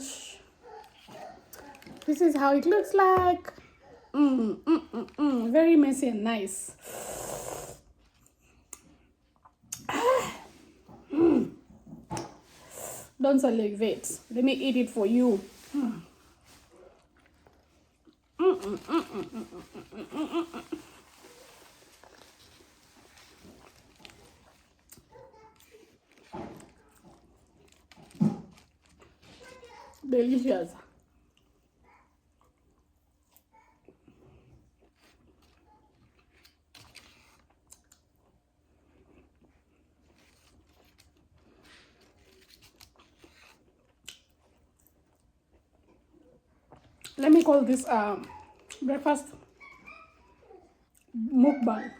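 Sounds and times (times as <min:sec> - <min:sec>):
chewing and mouth clicks: 0:00.7 - 0:02.5, 0:07.9 - 0:09.9, 0:16.8 - 0:30.0, 0:30.9 - 0:50.2
small crunches: 0:15.4 - 0:30.1, 0:34.1 - 0:46.0.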